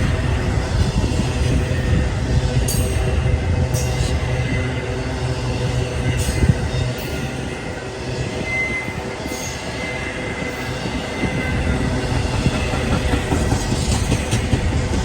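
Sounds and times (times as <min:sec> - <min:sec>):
train wheels rumbling on rail: 0:00.0 - 0:15.0
high wheel squeal: 0:03.4 - 0:13.4.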